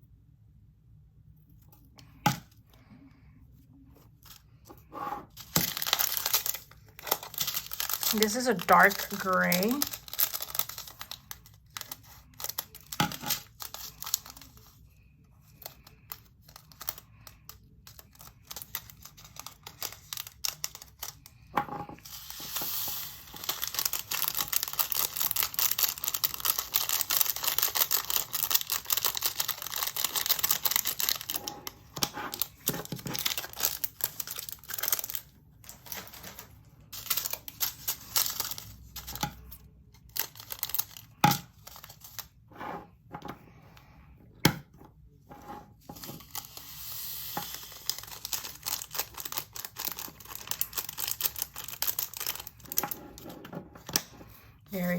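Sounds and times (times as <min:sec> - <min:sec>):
plastic bag rustling: 0:05.2 - 0:14.8, 0:22.0 - 0:39.3, 0:45.7 - 0:53.2
beads pouring rattle: 0:07.0 - 0:10.5, 0:22.1 - 0:30.7.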